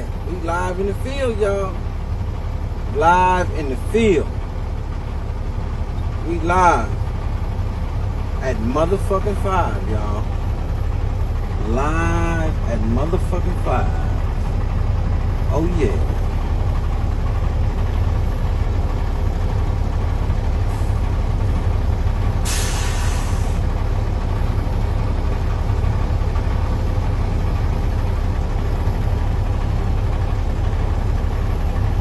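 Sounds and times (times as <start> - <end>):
diesel truck engine rumbling: 0.0 - 32.0
air brakes hissing: 20.7 - 21.1, 22.4 - 23.7.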